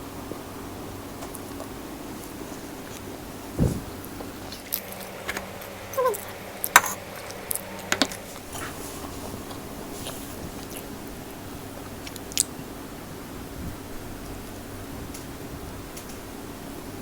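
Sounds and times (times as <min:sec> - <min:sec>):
low thump: 0:03.6 - 0:04.0.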